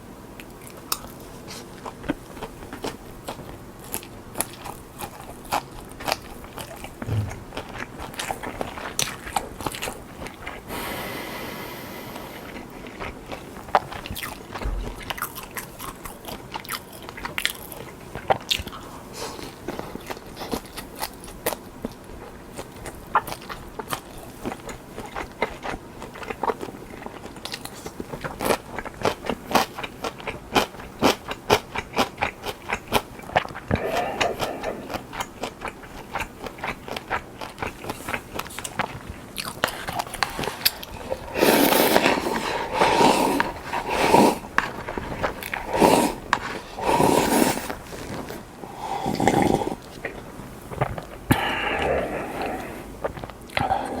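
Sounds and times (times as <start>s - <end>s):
crunching and chewing fried prawn: 0.4s - 11.0s, 11.9s - 54.0s
mouth noise: 7.0s - 7.6s.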